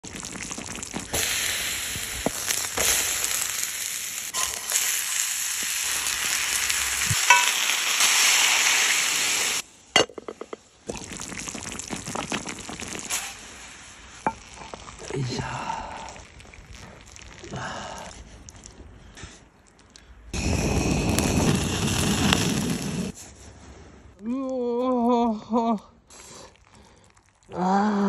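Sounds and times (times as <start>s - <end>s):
chicken sizzling in a skillet: 0.3s - 9.6s.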